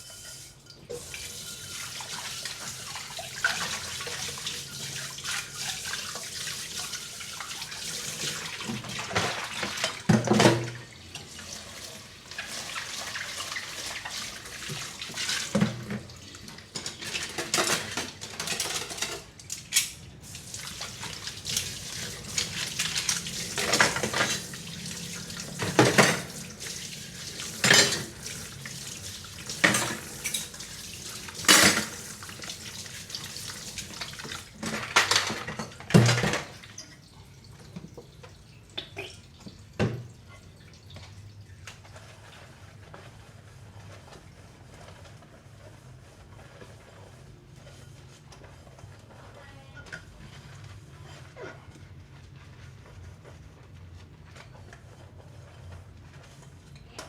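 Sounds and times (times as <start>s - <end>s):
water running and splashing: 0.9s - 17.5s, 20.2s - 47.2s
dishes and cutlery clinking: 16.7s - 20.0s, 27.5s - 28.4s, 29.6s - 30.7s, 31.3s - 32.1s.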